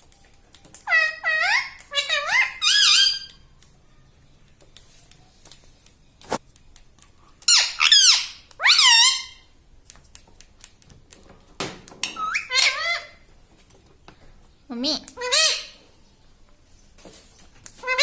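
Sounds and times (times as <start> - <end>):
parrot squawking: 0.8 - 3.3, 7.5 - 9.5, 12.2 - 13.2, 15.2 - 15.8, 17.8 - 18.0.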